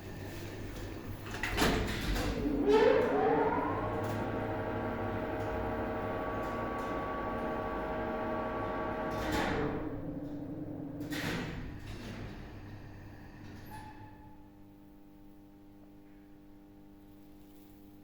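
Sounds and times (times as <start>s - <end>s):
elevator motor whine: 0.6s - 14.3s.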